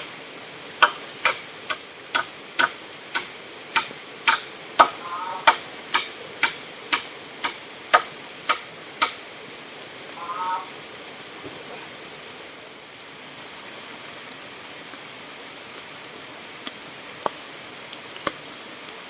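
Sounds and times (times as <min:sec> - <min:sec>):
hammer driving nails into wood: 0:00.8 - 0:09.3.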